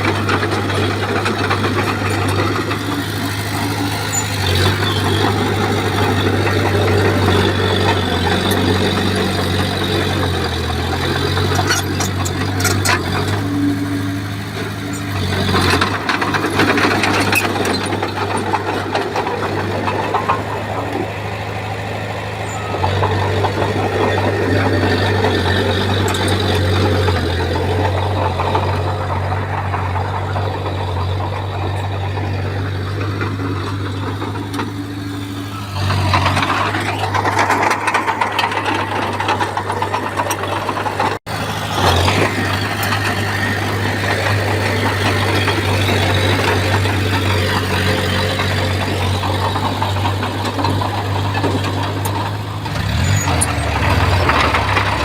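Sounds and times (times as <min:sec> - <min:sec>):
bulldozer diesel engine: 0:00.0 - 0:55.0
metallic clanks and rattles: 0:00.0 - 0:55.0.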